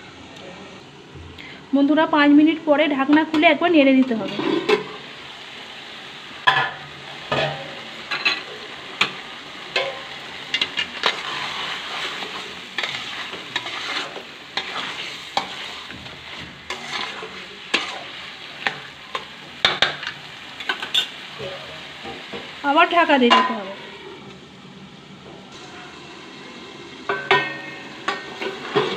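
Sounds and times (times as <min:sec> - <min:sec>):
chicken sizzling in oil: 0:00.8 - 0:28.9
spatula scraping and clinking pan: 0:06.5 - 0:21.2, 0:27.1 - 0:28.9.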